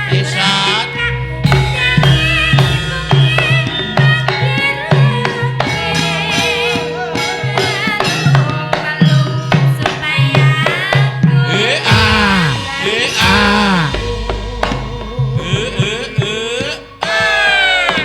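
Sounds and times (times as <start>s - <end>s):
gamelan music: 0.0s - 8.7s
metallic percussion: 0.0s - 18.0s
hand drum pattern: 11.8s - 16.9s.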